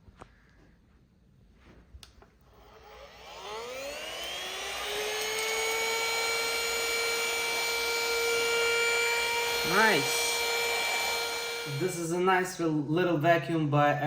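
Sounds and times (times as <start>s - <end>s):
handheld vacuum cleaner whine: 2.4s - 12.2s.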